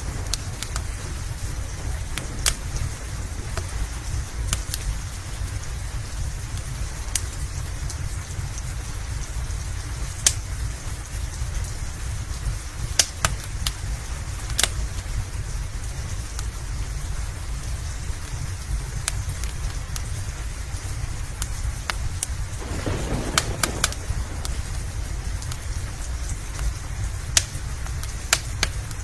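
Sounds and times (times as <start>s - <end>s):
low rumble: 0.0s - 6.0s, 22.6s - 27.2s
wood fire crackling and popping: 0.0s - 9.2s, 10.0s - 10.9s, 21.4s - 29.0s
steady rain: 0.0s - 29.0s.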